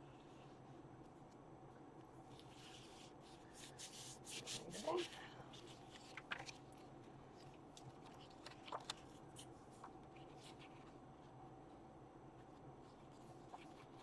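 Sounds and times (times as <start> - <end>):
paper rustling: 2.3 - 11.4, 12.4 - 14.0.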